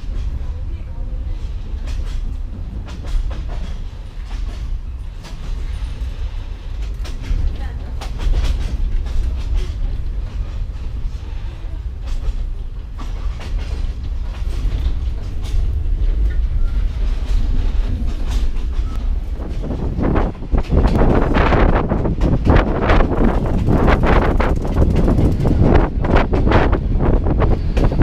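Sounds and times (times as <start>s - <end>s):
train rumble on tracks: 0.0s - 28.0s
wind buffeting microphone: 0.0s - 28.0s
wheels knocking on track: 11.9s - 28.0s.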